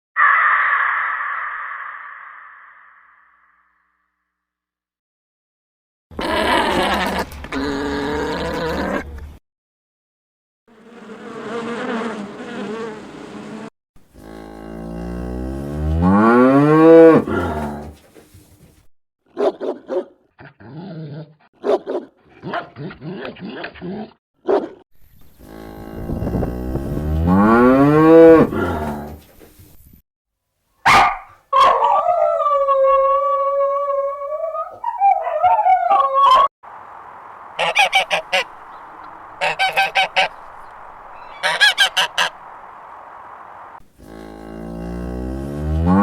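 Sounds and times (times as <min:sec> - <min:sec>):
farm animals calling: 0:00.2 - 0:03.0, 0:16.6 - 0:18.1, 0:35.0 - 0:45.2.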